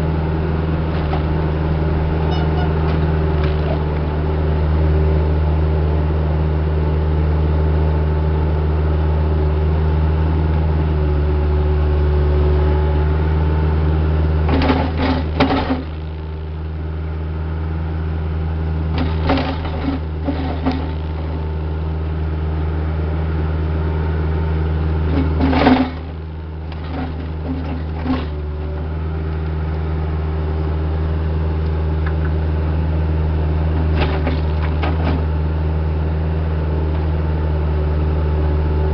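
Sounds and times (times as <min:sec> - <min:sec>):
diesel engine of heavy equipment: 0:00.0 - 0:38.9
metal clanking and knocks: 0:02.1 - 0:04.0, 0:14.5 - 0:16.0, 0:19.0 - 0:21.4, 0:25.1 - 0:28.4, 0:33.9 - 0:35.3.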